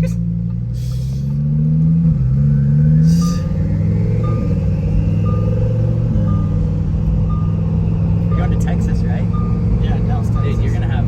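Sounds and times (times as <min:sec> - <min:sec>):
car engine cruising: 0:00.0 - 0:11.0
short electronic beeps: 0:02.5 - 0:11.0.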